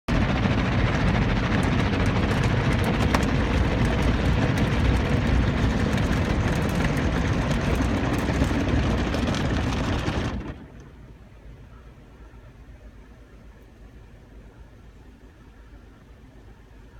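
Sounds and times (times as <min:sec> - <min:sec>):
car wash rushing noise: 0:00.1 - 0:10.8.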